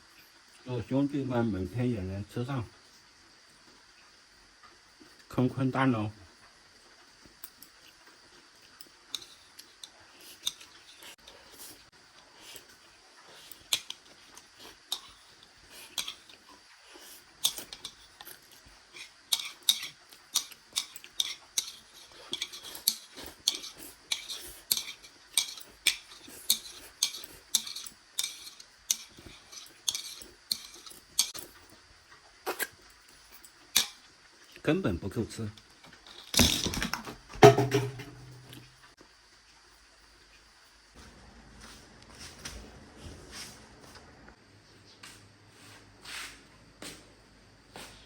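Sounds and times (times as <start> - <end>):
utensils clinking against bowl: 19.0 - 31.5.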